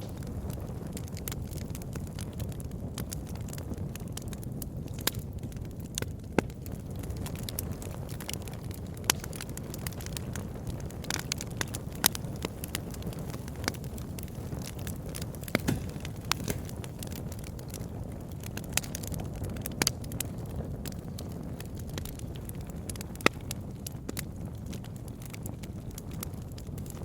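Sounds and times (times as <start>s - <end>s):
burning wood crackling and popping: 0.0s - 27.0s
campfire flames rushing: 0.0s - 27.0s.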